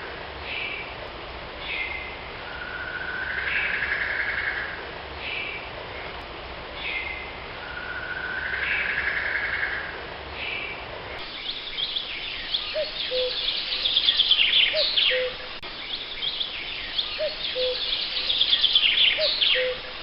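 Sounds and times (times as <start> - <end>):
small birds chirping: 10.4 - 20.0
bird rising call: 11.2 - 20.0
lower two-part bird call: 11.4 - 15.5, 17.0 - 20.0.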